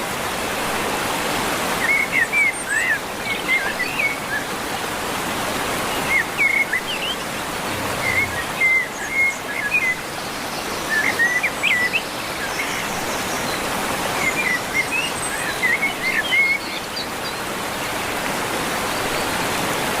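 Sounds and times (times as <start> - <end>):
bird chirping: 6.0 - 13.6
steady rushing noise: 6.3 - 9.9.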